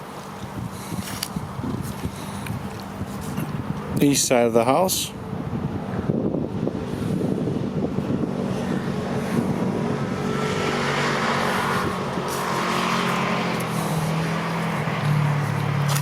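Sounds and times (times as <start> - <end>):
rushing noise: 5.3 - 16.0.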